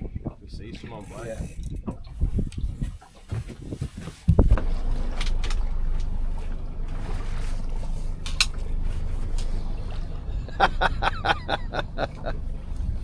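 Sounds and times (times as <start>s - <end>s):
boat engine rumbling: 0.0s - 13.0s
water noise: 0.0s - 13.0s.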